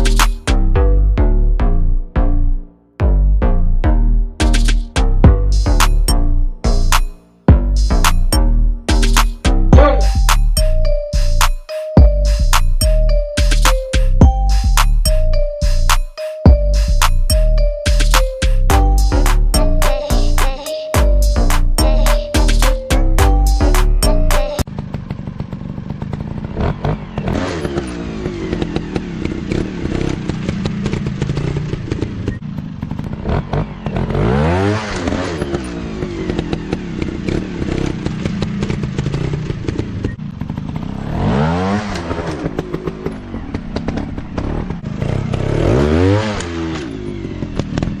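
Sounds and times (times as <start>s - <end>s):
dirt bike engine revving: 23.2s - 48.0s
clattering and scraping on terrain: 24.8s - 34.2s, 34.9s - 41.1s.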